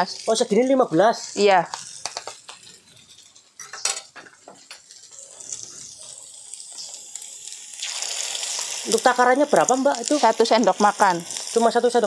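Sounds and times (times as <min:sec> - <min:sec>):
sausage sizzling in oil: 0:00.0 - 0:12.0.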